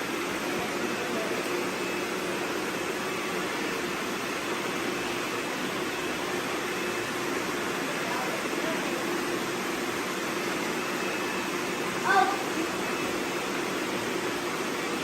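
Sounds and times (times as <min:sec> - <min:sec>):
robot vacuums whirring: 0:00.0 - 0:15.0.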